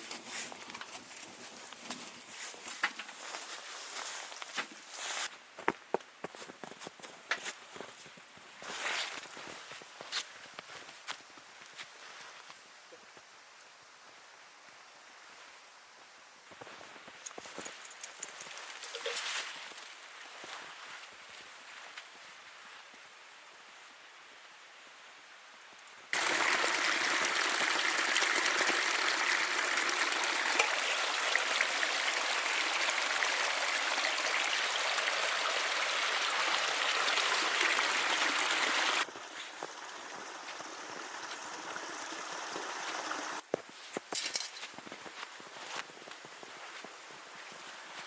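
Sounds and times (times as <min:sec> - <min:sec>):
running water rushing: 0:26.1 - 0:43.5.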